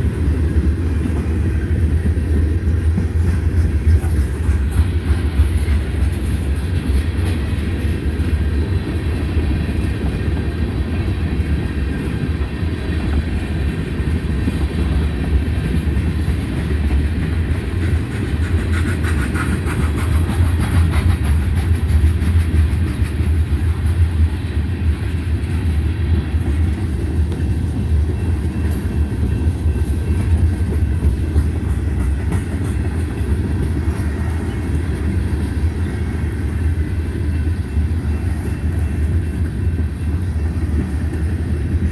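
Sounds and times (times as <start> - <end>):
freight train rumbling on rails: 0.0 - 41.9.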